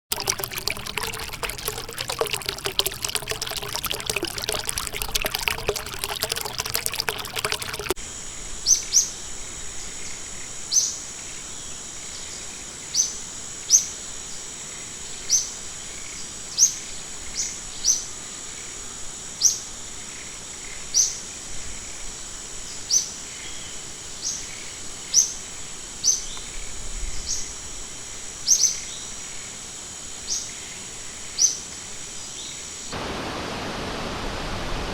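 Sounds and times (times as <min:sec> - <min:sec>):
splashing rushing water: 0:00.0 - 0:08.0, 0:33.0 - 0:34.9.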